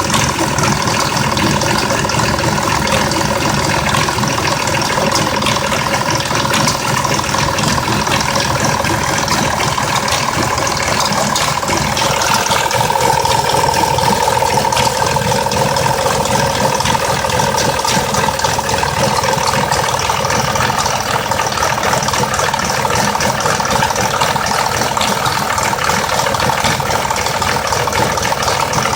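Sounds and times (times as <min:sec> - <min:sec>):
car engine idling roughly: 0:00.0 - 0:28.9
steady whine: 0:02.7 - 0:21.8.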